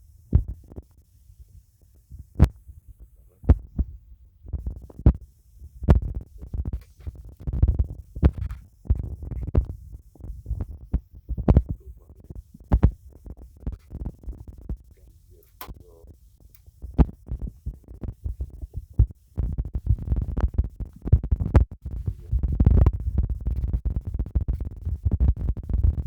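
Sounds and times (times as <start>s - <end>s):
sharp clicks: 15.4s - 16.7s.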